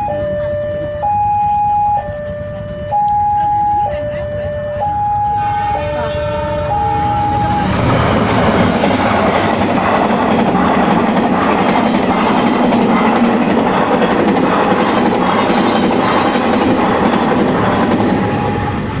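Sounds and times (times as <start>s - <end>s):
level crossing alarm: 0.0s - 7.9s
train wheels clattering: 7.8s - 19.0s.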